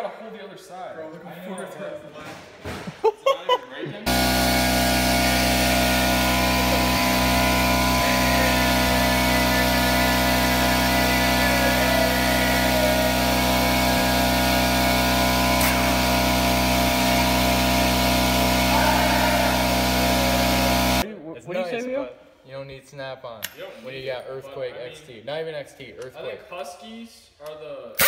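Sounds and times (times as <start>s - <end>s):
impact wrench hammering: 4.1s - 21.0s.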